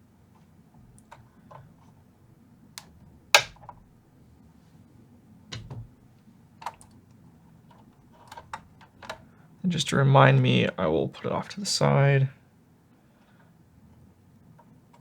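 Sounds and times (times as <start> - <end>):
hand tools clicking on wiring: 3.4 - 3.7.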